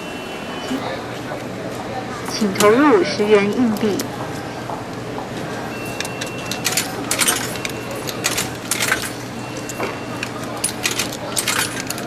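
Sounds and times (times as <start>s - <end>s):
coins clinking into machine: 5.8s - 12.0s.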